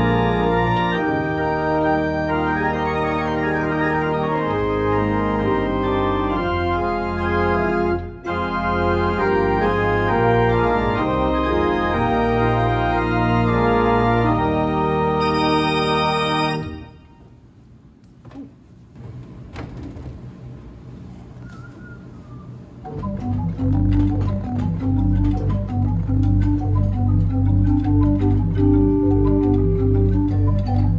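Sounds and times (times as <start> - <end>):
pipe organ chords: 0.0 - 17.2, 22.8 - 30.9
organ clicks: 22.9 - 30.9
deep pedal bass: 23.0 - 30.9.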